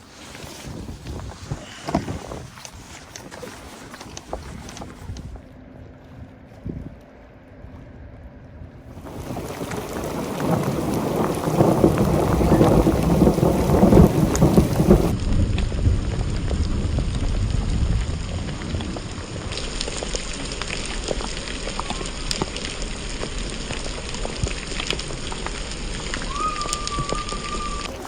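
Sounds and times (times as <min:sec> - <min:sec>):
steady rain: 0:00.0 - 0:05.3, 0:08.9 - 0:28.0
raindrops tapping close by: 0:09.0 - 0:28.0
thunder rumbling: 0:09.0 - 0:28.0.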